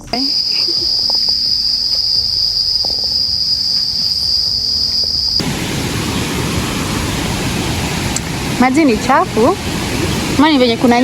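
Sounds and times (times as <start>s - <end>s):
insect trilling: 0.0s - 7.3s
rushing noise: 0.3s - 11.0s.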